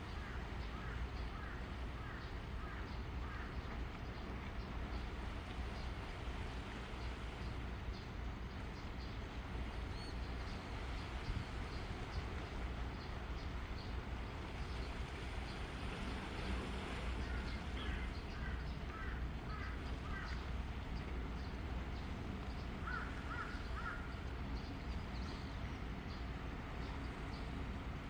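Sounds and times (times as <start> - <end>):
low coastal rumble: 0.0 - 28.0
birds cawing: 17.2 - 20.4, 22.8 - 24.2.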